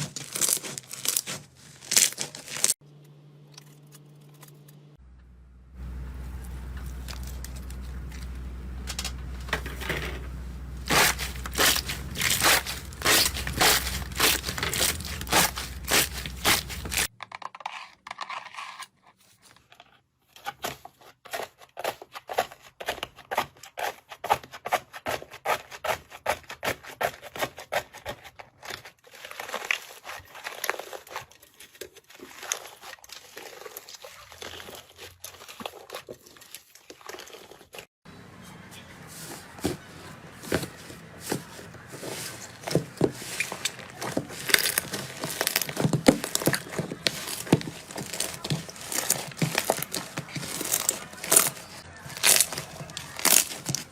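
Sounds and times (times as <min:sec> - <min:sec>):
steady low hum: 0:02.8 - 0:17.1
slime clicking and crackling: 0:43.5 - 0:53.9.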